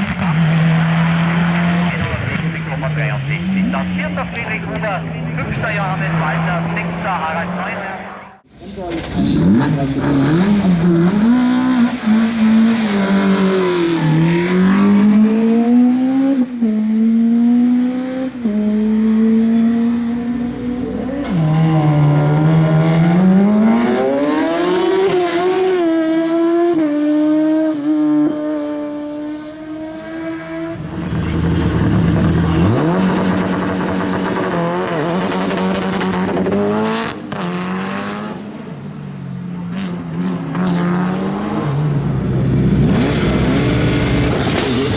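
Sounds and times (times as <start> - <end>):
race car engine accelerating: 0.0 - 38.9, 39.7 - 44.9
car engine with high whine: 27.6 - 44.9.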